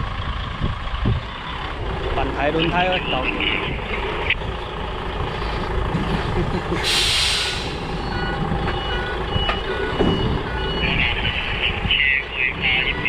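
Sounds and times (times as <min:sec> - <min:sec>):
truck diesel engine running: 0:00.0 - 0:13.0
air brakes hissing: 0:06.8 - 0:08.0
reversing alarm beeping: 0:07.0 - 0:13.0.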